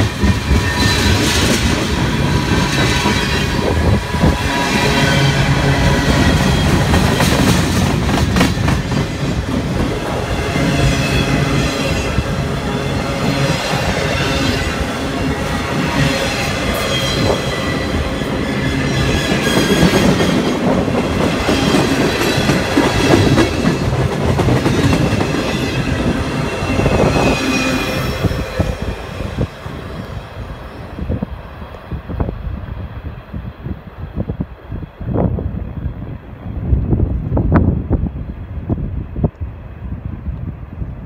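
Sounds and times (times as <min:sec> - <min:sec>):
steel wheels rumbling on rails: 0:00.0 - 0:39.2
high wheel squeal: 0:10.6 - 0:19.9, 0:25.5 - 0:29.0.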